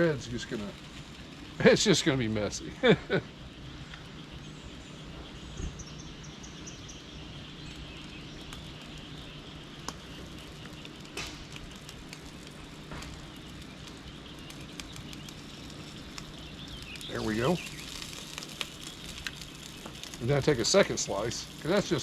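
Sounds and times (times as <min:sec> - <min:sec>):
bread sizzling in a pan: 0:00.0 - 0:03.2, 0:06.3 - 0:22.0
bird chirping: 0:00.0 - 0:22.0.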